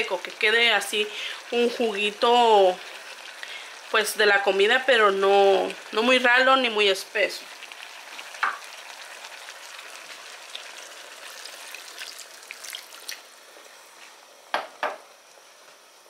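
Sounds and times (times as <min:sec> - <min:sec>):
chicken and onions sizzling: 0:00.0 - 0:16.0
water pouring into pot: 0:07.5 - 0:13.5.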